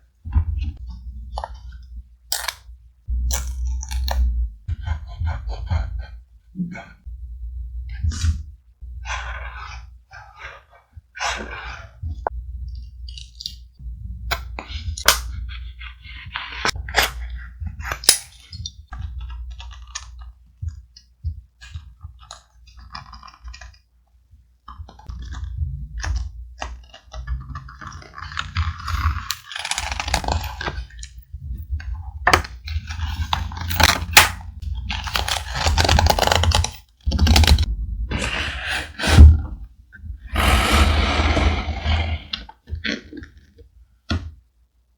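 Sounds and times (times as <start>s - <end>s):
low steady rumble: 0.3s - 9.6s, 12.1s - 16.5s.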